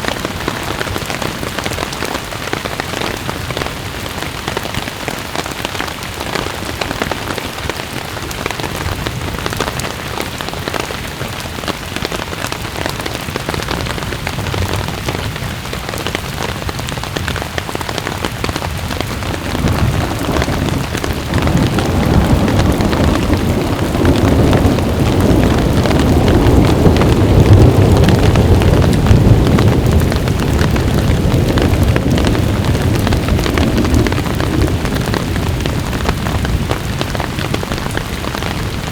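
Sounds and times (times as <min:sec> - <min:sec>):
rain falling: 0:00.0 - 0:38.9
thunder rumbling: 0:13.3 - 0:38.9.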